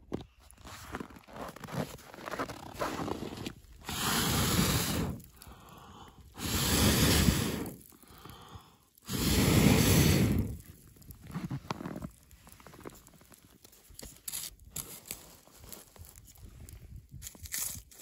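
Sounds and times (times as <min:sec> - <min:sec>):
quiet in-breaths: 0:03.8 - 0:10.8
person blowing into campfire: 0:03.8 - 0:10.9.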